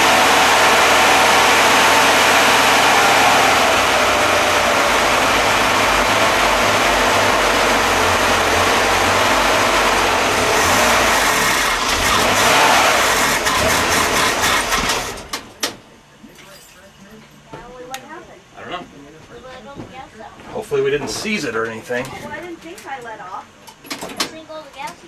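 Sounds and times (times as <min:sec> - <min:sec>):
car engine running: 0:00.0 - 0:15.6.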